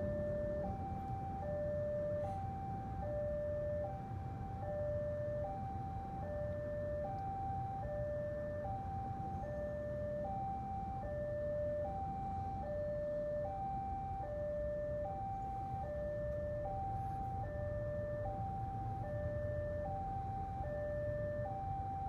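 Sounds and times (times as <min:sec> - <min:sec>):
two-note crossing alarm: 0:00.0 - 0:03.9.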